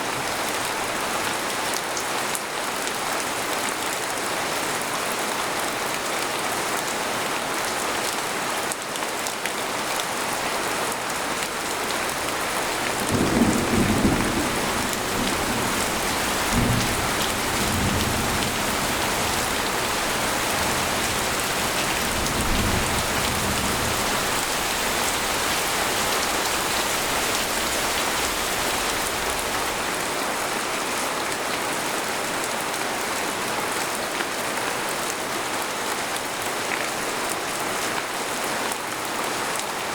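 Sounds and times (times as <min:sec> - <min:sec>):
rain falling on a tent: 0:00.0 - 0:39.9
thunder rumbling: 0:12.2 - 0:25.6.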